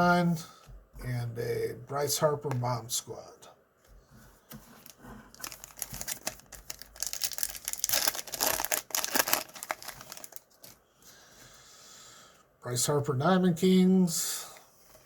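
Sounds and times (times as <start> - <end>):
card pack wrapper tearing and crinkling: 4.8 - 10.8.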